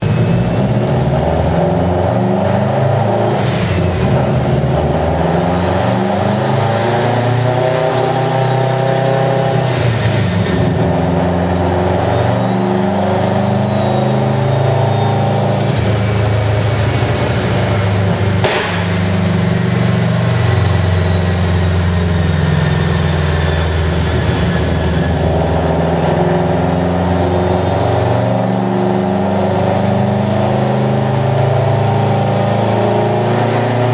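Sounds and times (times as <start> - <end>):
turbocharged engine under load: 0.0 - 33.9
sharp crack: 18.4 - 19.6.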